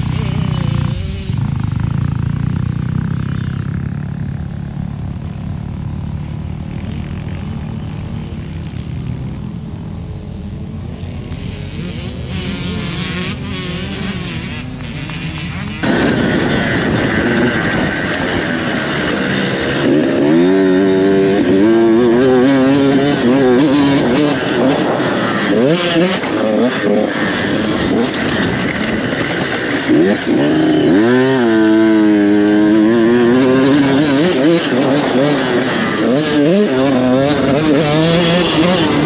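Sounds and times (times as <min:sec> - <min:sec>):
dirt bike revving: 0:00.0 - 0:39.0
distant dirt bike engine drone: 0:00.0 - 0:39.0.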